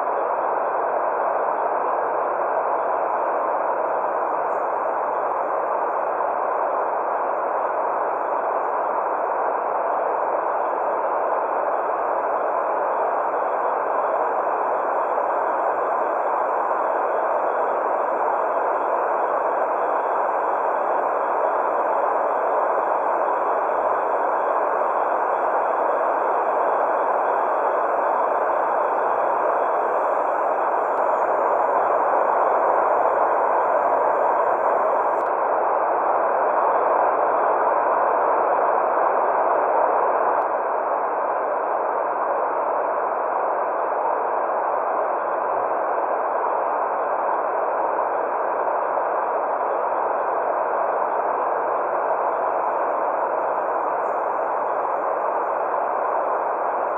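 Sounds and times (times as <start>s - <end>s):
white noise hiss: 0.0s - 40.3s.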